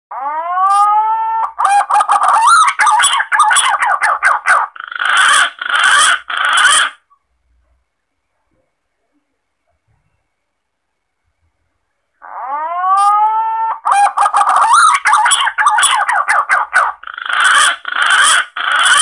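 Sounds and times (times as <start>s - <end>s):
pigeon calls: 0.7s - 7.1s, 12.2s - 19.0s.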